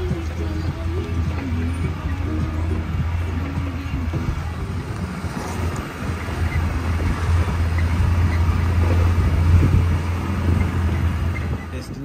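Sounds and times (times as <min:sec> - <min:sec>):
engine drone: 0:00.0 - 0:12.0
tyre and road noise: 0:00.0 - 0:12.0.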